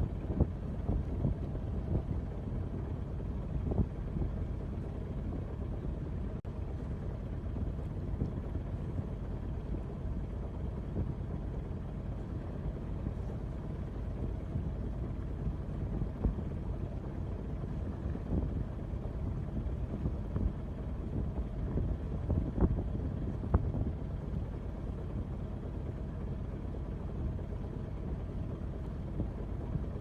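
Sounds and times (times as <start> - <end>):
wind rumbling on microphone: 0.0 - 30.0.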